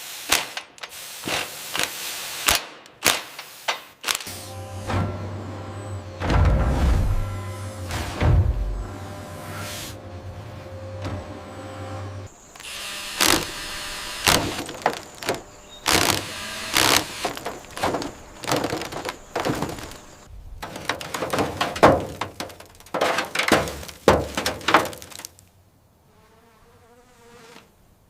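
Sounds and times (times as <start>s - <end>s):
clattering impacts on metal: 6.2s - 9.0s, 14.2s - 25.4s.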